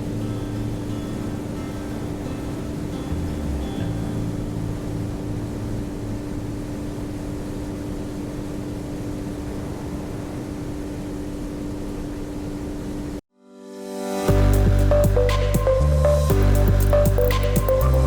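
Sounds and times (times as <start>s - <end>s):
wind and water rushing: 0.5s - 13.2s.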